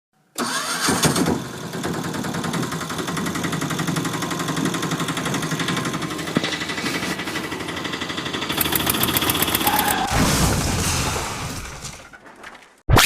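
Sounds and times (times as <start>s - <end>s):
engine chugging: 1.4s - 10.0s.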